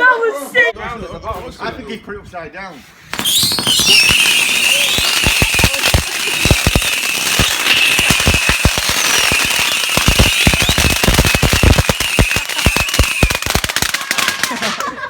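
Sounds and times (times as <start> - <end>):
high hiss: 3.1 - 13.7
firework cracks and pops: 3.1 - 15.0.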